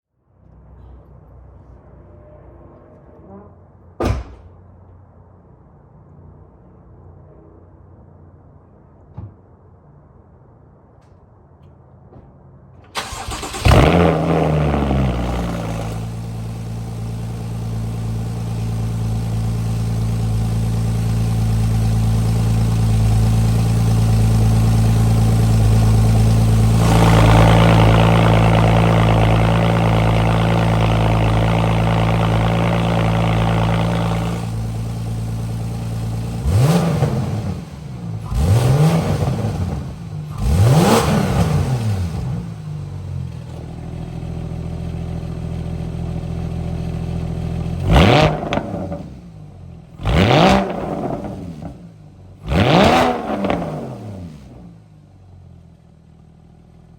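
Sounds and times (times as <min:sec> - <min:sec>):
car engine idling: 0:12.8 - 0:50.0
engine revving: 0:13.0 - 0:43.0, 0:47.6 - 0:49.3, 0:49.9 - 0:54.8.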